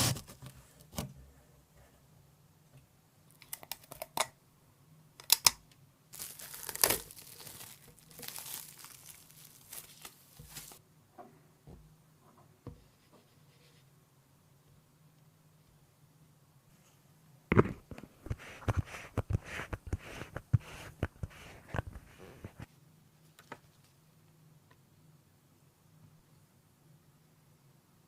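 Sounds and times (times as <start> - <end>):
tearing and crinkling: 6.1 - 10.8.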